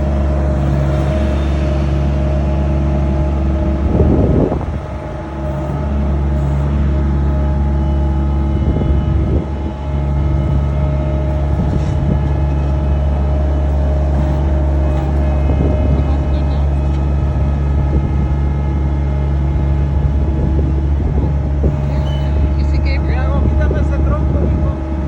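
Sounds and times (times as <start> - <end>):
skid steer engine running: 0.0 - 25.0.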